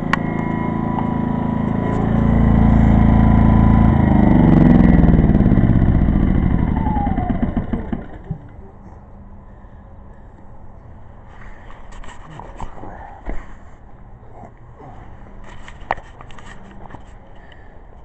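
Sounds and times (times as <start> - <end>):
generator engine running: 0.0 - 8.8.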